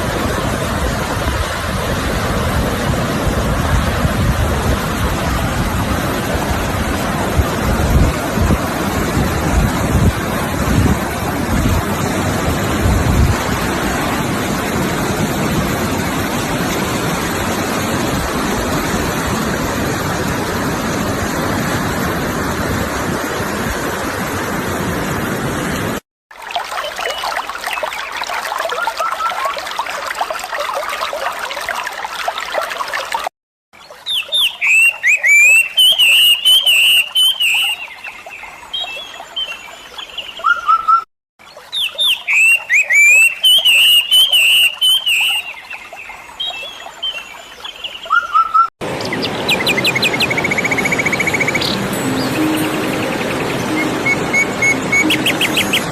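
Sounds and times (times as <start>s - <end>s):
sea surf rushing: 0.0s - 26.0s, 48.8s - 55.9s
running water: 0.0s - 40.6s, 48.8s - 55.9s
songbirds calling: 33.8s - 55.9s.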